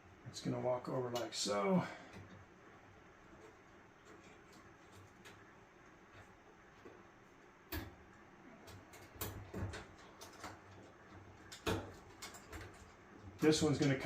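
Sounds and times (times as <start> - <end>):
plastic parts knocking and clicking: 8.6 - 14.0.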